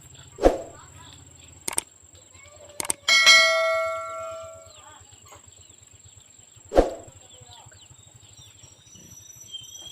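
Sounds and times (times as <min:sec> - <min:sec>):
quick clicks: 0:01.6 - 0:01.9, 0:02.8 - 0:03.0
bell-like ding: 0:03.1 - 0:04.8.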